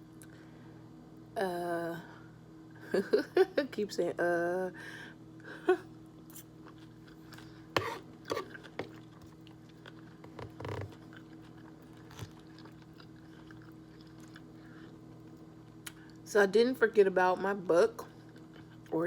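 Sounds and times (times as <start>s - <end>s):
steady low hum: 0.0s - 19.0s
person chewing and eating: 6.3s - 16.2s, 18.1s - 18.9s.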